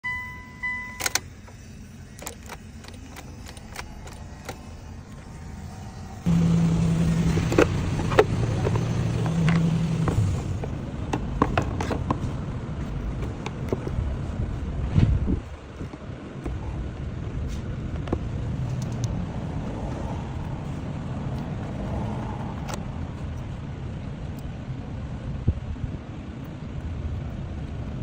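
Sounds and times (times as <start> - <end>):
short beep: 0.0 - 1.2
car engine running: 0.4 - 28.0
starter motor whine: 0.9 - 11.8.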